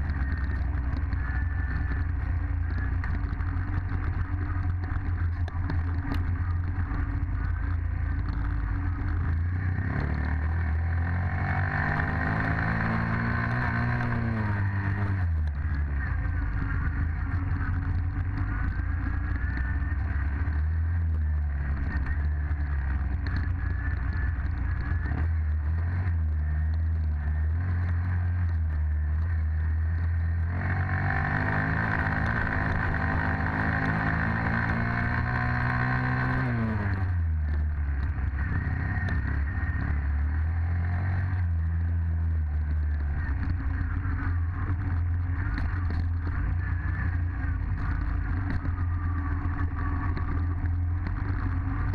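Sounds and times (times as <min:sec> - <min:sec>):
dirt bike engine revving: 0:06.3 - 0:28.2, 0:29.1 - 0:37.2.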